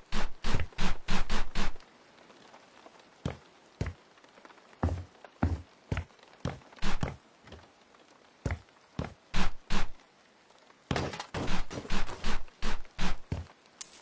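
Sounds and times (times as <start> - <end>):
heavy thuds and knocks: 4.8 - 7.6, 10.9 - 13.5.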